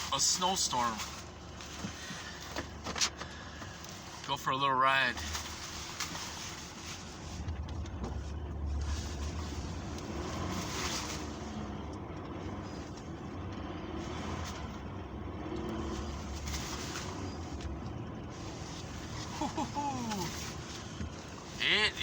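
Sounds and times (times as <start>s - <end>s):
vehicle engine rumble: 0.0s - 22.0s.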